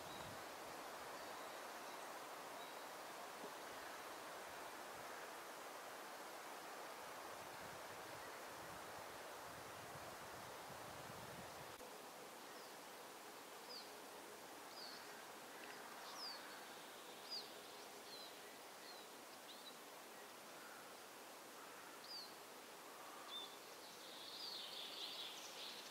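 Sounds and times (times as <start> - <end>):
woodland ambience hiss: 0.0 - 25.9
small birds chirping: 14.7 - 20.9.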